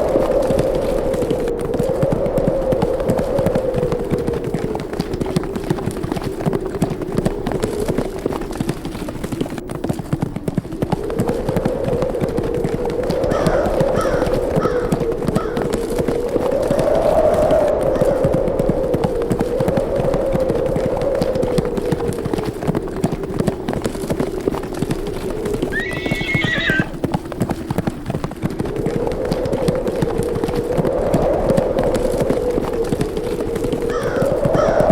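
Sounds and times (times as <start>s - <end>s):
horses' hooves galloping: 0.0s - 34.9s
moaning wind: 0.0s - 34.9s
horse whinnying: 25.7s - 27.0s.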